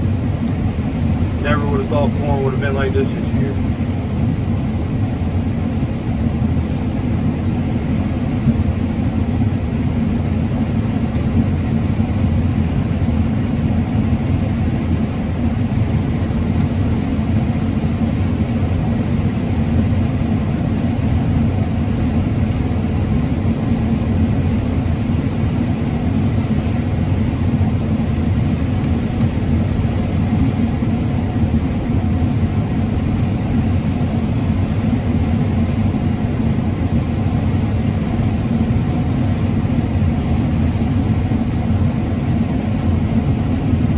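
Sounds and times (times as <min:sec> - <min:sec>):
combine harvester rumbling: 0:00.0 - 0:21.7.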